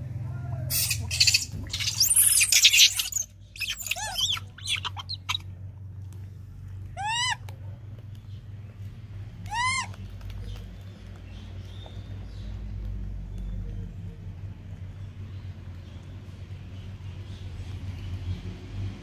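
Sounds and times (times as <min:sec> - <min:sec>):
baby monkey high calls: 0:00.7 - 0:05.4, 0:07.0 - 0:07.4, 0:09.4 - 0:10.2.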